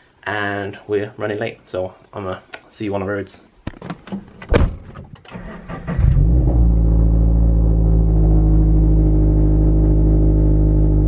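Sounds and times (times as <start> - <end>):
car engine starting and running: 5.2 - 11.0.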